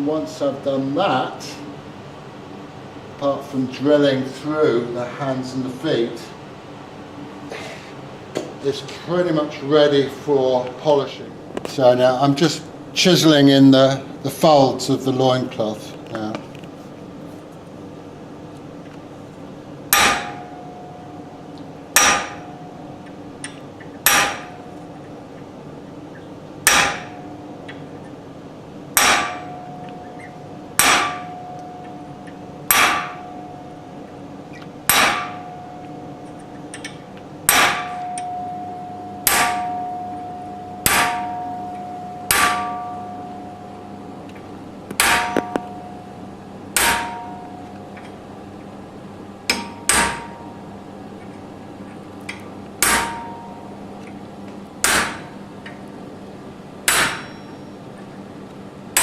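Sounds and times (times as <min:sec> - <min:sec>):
hammer striking chisel on metal: 0:19.9 - 0:20.6, 0:22.0 - 0:22.6, 0:23.4 - 0:24.6, 0:26.6 - 0:27.2, 0:29.0 - 0:32.0, 0:32.7 - 0:33.5, 0:34.5 - 0:43.7, 0:44.9 - 0:46.1, 0:46.8 - 0:47.7, 0:49.5 - 0:50.6, 0:52.3 - 0:53.7, 0:54.8 - 0:55.3, 0:56.9 - 0:57.6.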